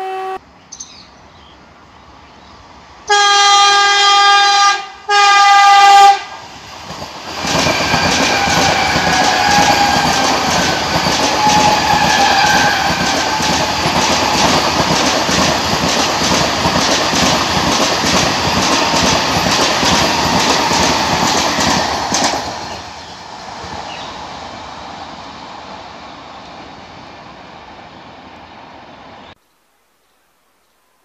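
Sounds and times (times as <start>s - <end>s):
train horn: 0.0s - 0.4s, 3.1s - 6.4s, 7.9s - 13.6s
train rushing past: 1.8s - 29.4s
wheels clacking over rail joints: 6.8s - 22.9s.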